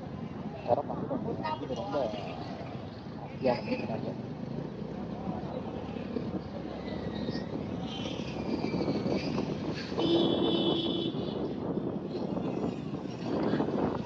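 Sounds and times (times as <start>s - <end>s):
road traffic passing: 0.0s - 14.0s
vehicle horn: 10.0s - 11.3s.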